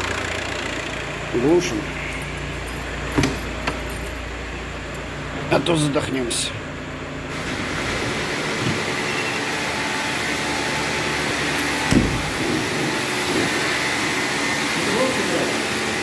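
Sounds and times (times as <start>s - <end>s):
car wash machinery rushing: 0.0s - 16.0s
thump: 11.9s - 12.3s.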